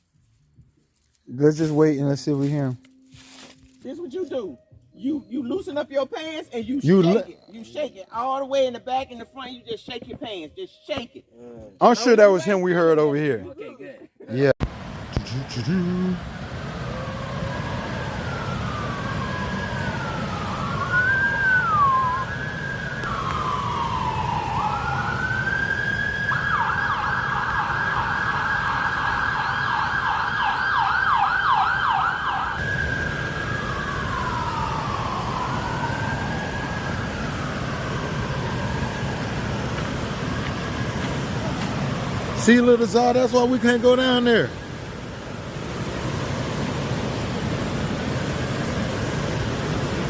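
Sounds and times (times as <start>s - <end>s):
low rumble of traffic: 14.6s - 50.0s
emergency siren wailing and yelping: 16.2s - 45.4s.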